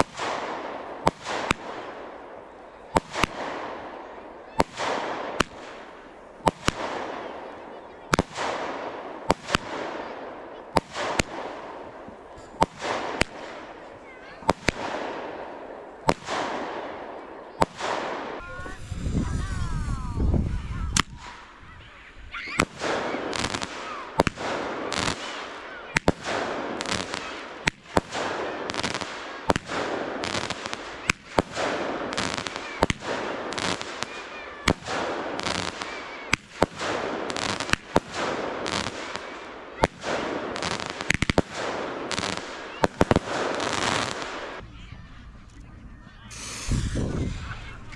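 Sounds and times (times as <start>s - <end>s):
fireworks crackling hiss: 0.0s - 4.0s, 17.6s - 21.6s, 22.5s - 45.5s, 46.2s - 47.9s
fireworks bangs: 0.0s - 47.9s
faint firework whistle: 46.3s - 47.9s.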